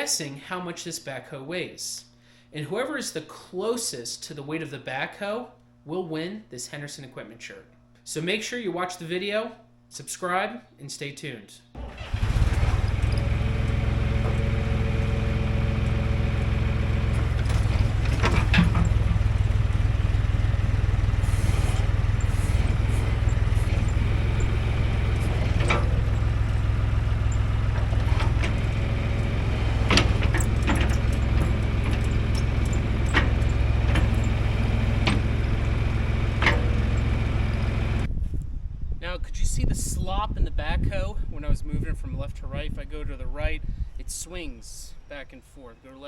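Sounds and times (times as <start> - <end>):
backhoe boom clanking: 11.8 - 38.1
backhoe engine running: 11.8 - 38.1.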